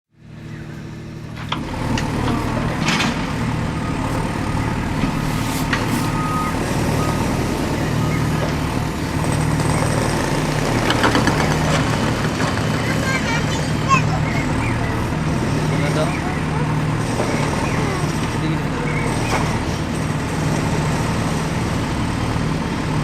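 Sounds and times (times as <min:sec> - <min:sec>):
diesel engine running: 0:00.2 - 0:23.0
high reversing alarm beeps: 0:03.4 - 0:09.9.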